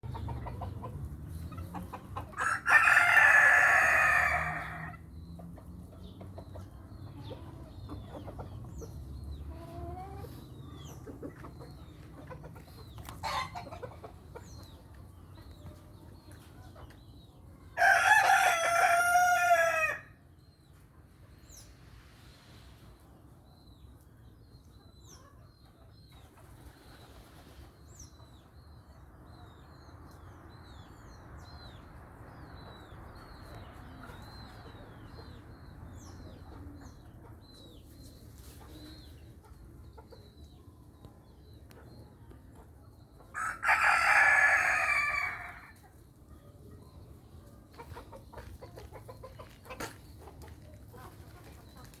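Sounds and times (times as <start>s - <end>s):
small birds chirping: 0.0s - 17.9s, 20.3s - 52.0s
rooster crowing: 2.4s - 4.9s, 17.8s - 20.1s, 43.4s - 45.7s.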